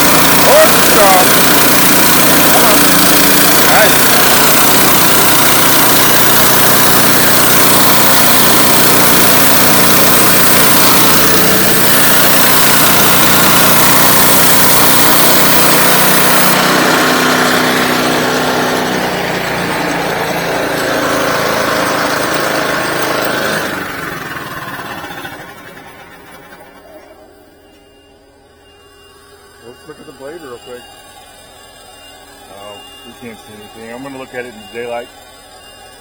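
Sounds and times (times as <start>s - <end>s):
saw blade hissing through log: 0.0s - 19.7s
sawmill engine running: 0.0s - 36.0s.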